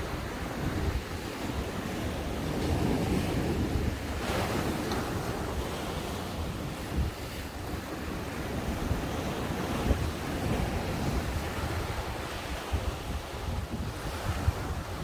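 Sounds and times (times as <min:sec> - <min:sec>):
ocean waves breaking on shore: 0:00.0 - 0:15.0
wind buffeting microphone: 0:00.0 - 0:15.0.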